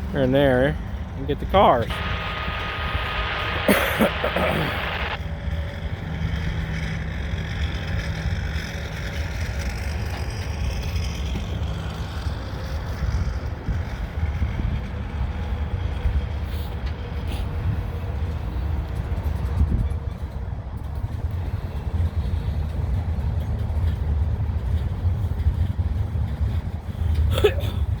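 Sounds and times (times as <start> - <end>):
freight train wheels rumbling on track: 0.0 - 28.0
faint steady hum: 1.8 - 5.2.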